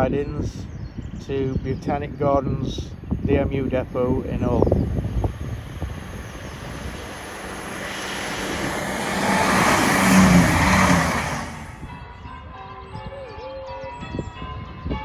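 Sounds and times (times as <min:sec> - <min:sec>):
train passing by: 0:03.4 - 0:11.8.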